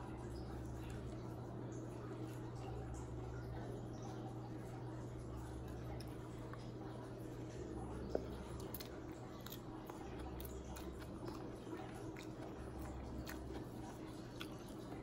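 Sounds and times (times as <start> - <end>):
aquarium hum: 0.0 - 15.0
chewing with wet mouth clicks: 0.1 - 15.0.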